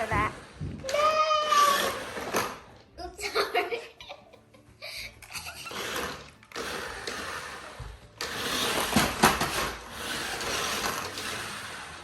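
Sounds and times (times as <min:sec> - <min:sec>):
toy truck electric motor whirring: 0:00.0 - 0:02.7, 0:05.2 - 0:12.0.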